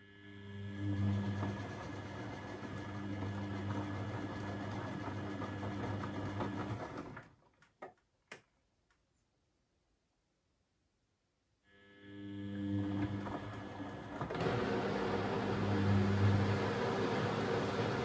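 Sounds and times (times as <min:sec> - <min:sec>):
washing machine drum humming: 0:00.8 - 0:07.2, 0:12.7 - 0:18.0.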